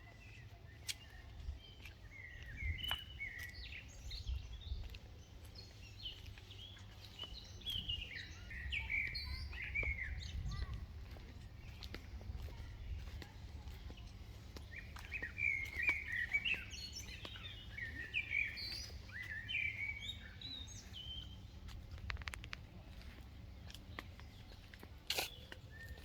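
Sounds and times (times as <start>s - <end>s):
songbirds chirping: 0.0s - 26.0s
sharp clicks: 22.0s - 22.7s.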